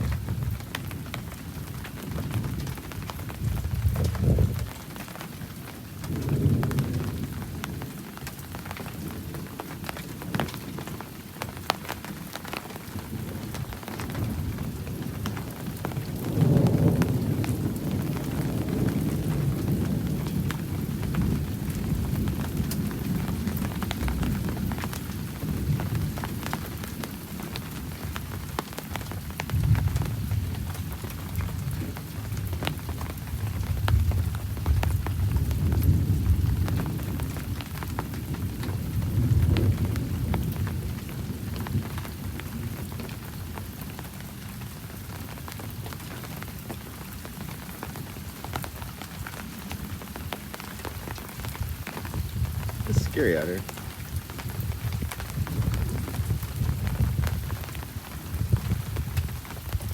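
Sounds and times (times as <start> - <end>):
steady rain: 0.0 - 59.9
thunder rumbling: 1.7 - 4.9
raindrops ticking: 49.3 - 55.9.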